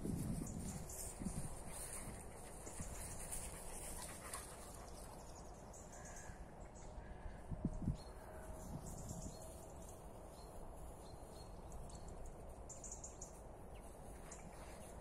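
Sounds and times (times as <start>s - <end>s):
small birds chirping: 0.2s - 7.2s.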